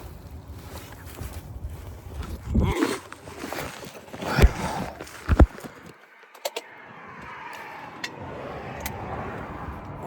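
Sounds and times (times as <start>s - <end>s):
vehicle noise in background: 3.1s - 10.0s.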